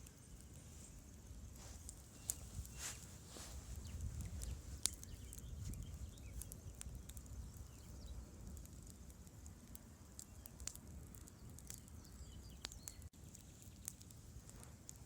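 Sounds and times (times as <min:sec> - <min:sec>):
campfire crackling and popping: 0:00.0 - 0:15.0
faint bird chirps: 0:01.7 - 0:09.1, 0:10.0 - 0:14.0.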